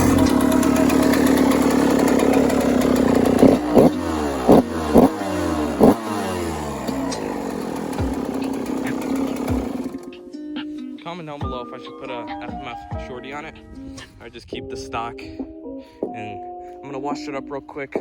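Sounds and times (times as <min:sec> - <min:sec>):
motorcycle engine idling and revving: 0:00.0 - 0:10.2.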